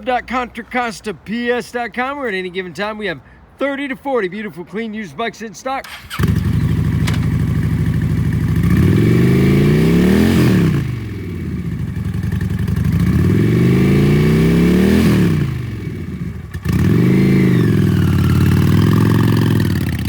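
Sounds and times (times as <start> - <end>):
motorcycle engine idling and revving: 5.8 - 20.0.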